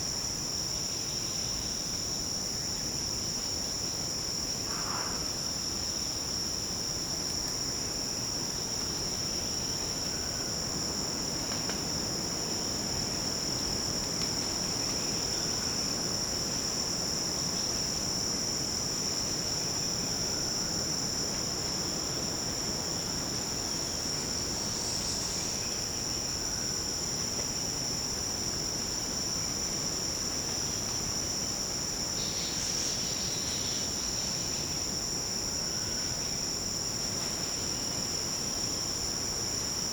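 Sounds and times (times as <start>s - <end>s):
insect chorus shrilling: 0.8s - 7.0s, 8.1s - 39.9s.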